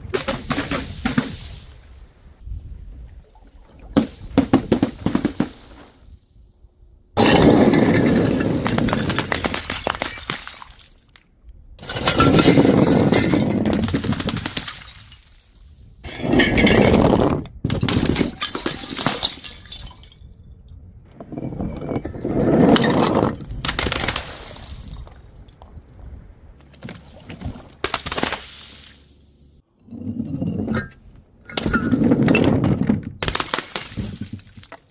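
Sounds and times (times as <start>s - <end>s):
glass bottles smashing: 7.2s - 17.1s, 17.8s - 20.3s, 31.5s - 34.9s.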